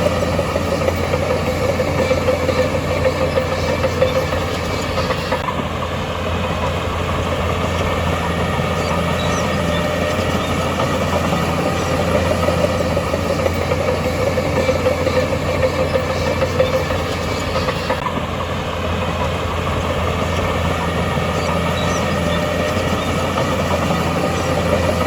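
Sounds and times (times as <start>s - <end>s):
heavy diesel machinery drone: 0.0s - 25.0s
machinery clanking: 0.0s - 25.0s.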